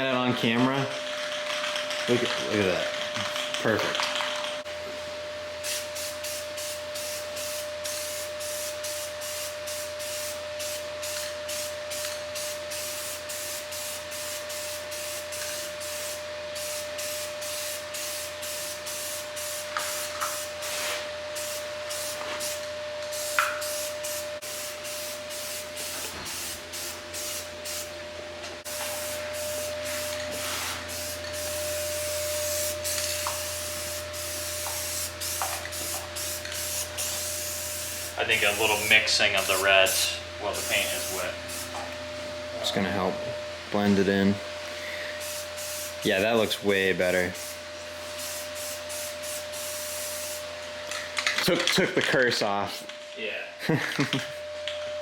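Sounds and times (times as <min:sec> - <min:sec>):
steady hum: 0:00.0 - 0:51.4
spray-paint can hissing: 0:05.6 - 0:27.9, 0:28.7 - 0:41.9, 0:45.1 - 0:46.1, 0:47.1 - 0:51.4.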